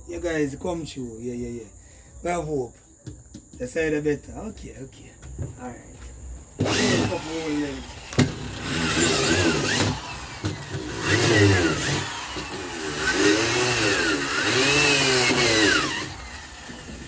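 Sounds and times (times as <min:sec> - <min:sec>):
power drill boring through metal: 0:06.6 - 0:17.0.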